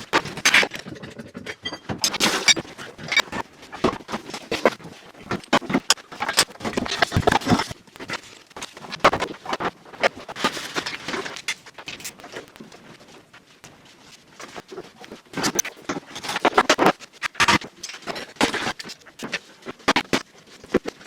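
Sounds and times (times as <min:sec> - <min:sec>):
rapid scrapes clicks and knocks: 0:00.0 - 0:21.0.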